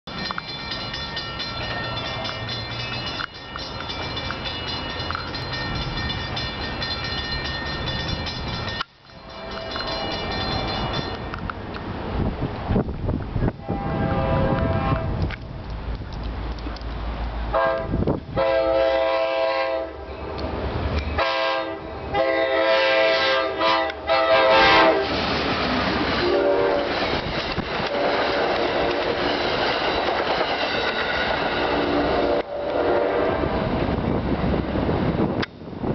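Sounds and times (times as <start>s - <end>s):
wheels clattering on rails: 0.1s - 13.4s, 24.8s - 32.5s
train rumbling past: 0.1s - 35.9s
train horn blasts: 9.2s - 10.4s, 13.6s - 15.2s, 17.5s - 20.1s, 21.2s - 25.2s, 26.2s - 27.0s, 27.8s - 29.2s, 31.8s - 33.7s.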